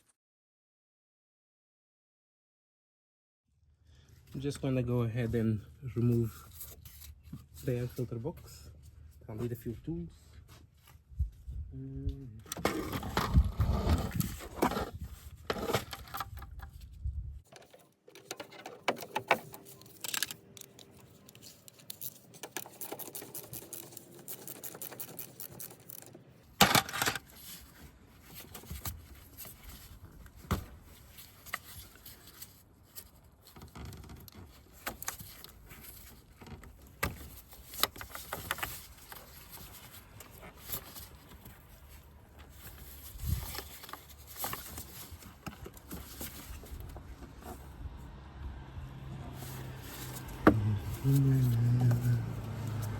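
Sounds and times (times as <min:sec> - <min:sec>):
hand tools clinking and scraping: 0:17.5 - 0:27.8.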